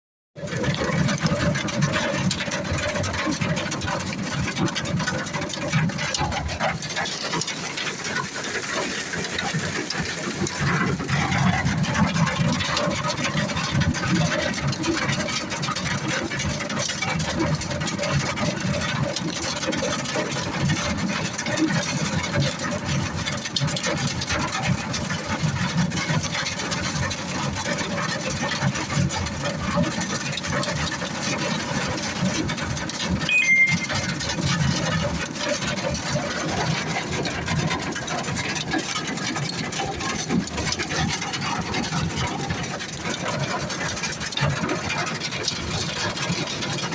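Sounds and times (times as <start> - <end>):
hail and rain pelting vehicle: 0.4 - 46.9.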